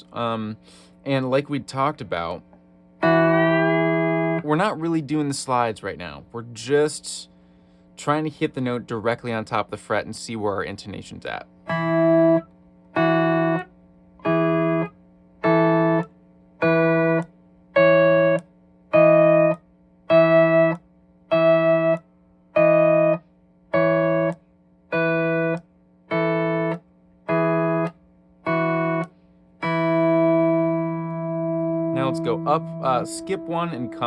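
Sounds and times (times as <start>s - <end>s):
lap steel guitar playing scale: 3.0s - 5.0s, 11.7s - 22.0s, 22.6s - 34.0s.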